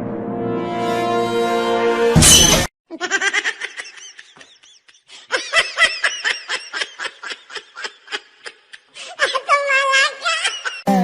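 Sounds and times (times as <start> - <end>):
high-pitched human laughter: 2.9 - 10.9.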